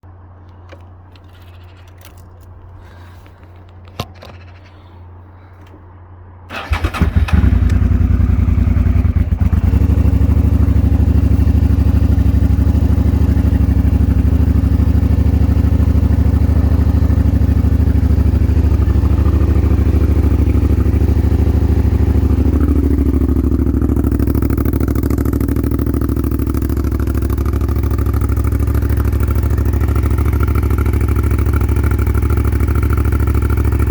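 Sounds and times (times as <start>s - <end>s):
motorcycle engine idling: 6.5s - 33.9s.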